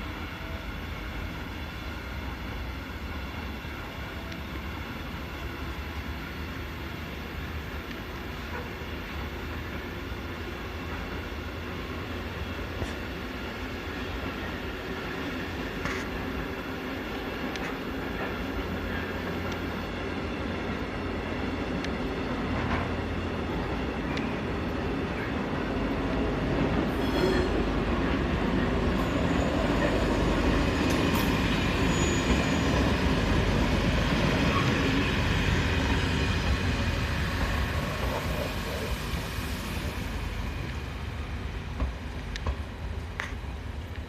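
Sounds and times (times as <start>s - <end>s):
electric passenger train passing: 0.0s - 44.0s
freight train rolling: 0.0s - 44.0s
wheels squealing on rail: 26.8s - 40.0s.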